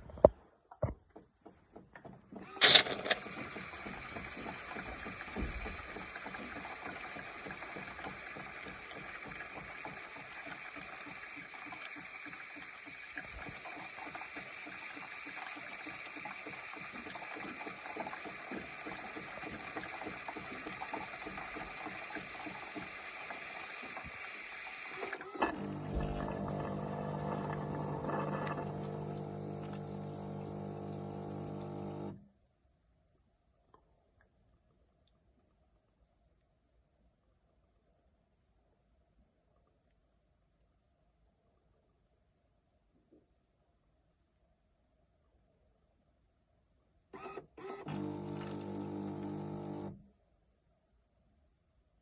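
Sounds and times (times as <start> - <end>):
low pump hum: 0.0 - 32.3, 47.2 - 50.1
coffee machine mechanical buzz: 25.0 - 32.2, 47.2 - 50.0.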